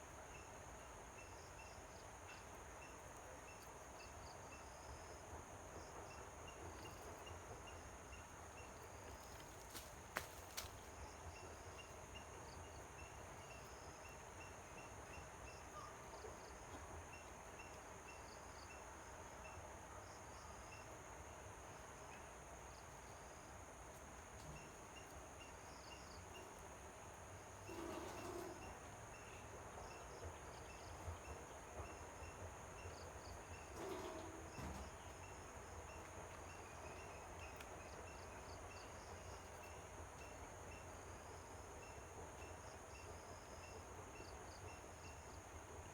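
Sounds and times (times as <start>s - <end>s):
insects droning: 0.0s - 45.9s
insect chirps: 27.4s - 45.6s.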